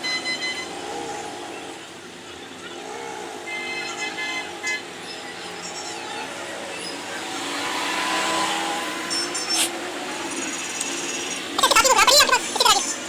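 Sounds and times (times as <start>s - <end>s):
vehicle passing: 4.8s - 13.0s.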